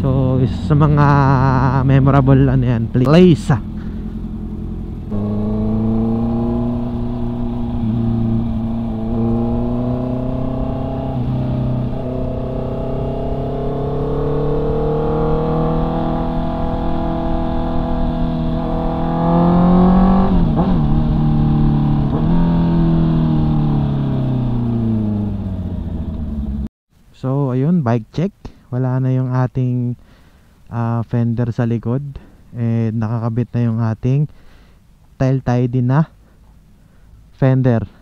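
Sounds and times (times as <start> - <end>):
motorcycle engine accelerating: 0.0 - 26.7.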